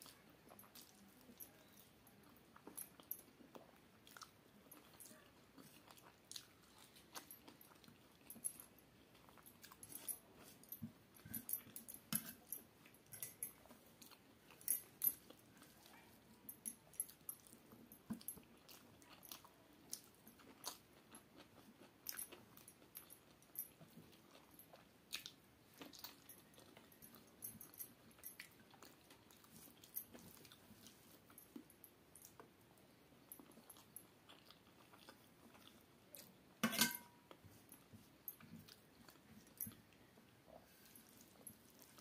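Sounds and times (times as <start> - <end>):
chewing and mouth smacks: 0.0 - 32.6, 33.2 - 36.6, 37.3 - 42.0
ringing clink: 36.6 - 37.2.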